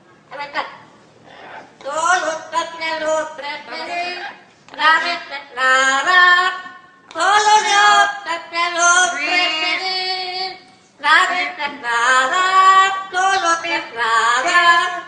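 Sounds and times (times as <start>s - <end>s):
high-pitched voice singing: 1.8s - 6.4s.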